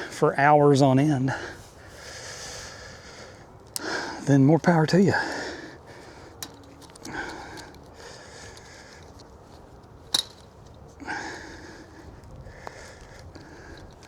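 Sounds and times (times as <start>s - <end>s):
person breathing: 1.3s - 4.3s, 5.1s - 9.2s, 11.0s - 14.0s
sharp click of fence wire: 6.4s - 7.8s, 10.1s - 10.8s.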